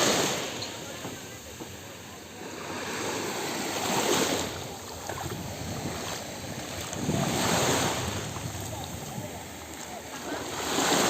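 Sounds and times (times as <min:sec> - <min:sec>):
sea water splashing: 0:00.0 - 0:11.0
wind on microphone: 0:04.0 - 0:09.8.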